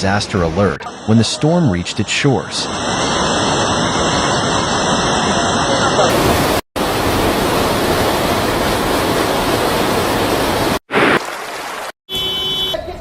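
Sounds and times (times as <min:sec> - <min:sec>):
floodwater rushing: 0:02.6 - 0:12.0.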